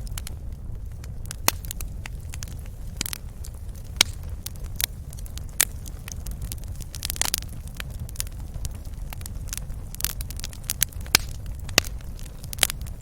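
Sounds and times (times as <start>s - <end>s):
low rumble of fire: 0.0s - 13.0s
wood fire pops and snaps: 0.0s - 13.0s.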